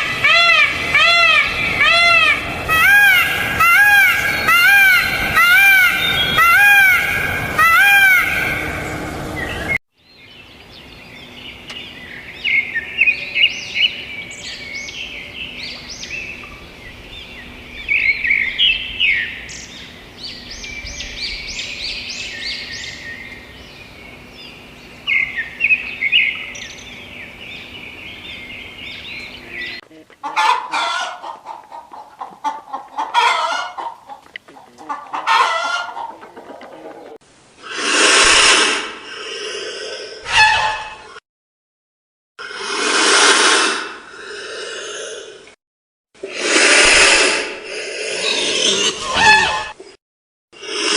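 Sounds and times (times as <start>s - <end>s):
chickens clucking: 29.3s - 37.2s, 40.3s - 41.1s.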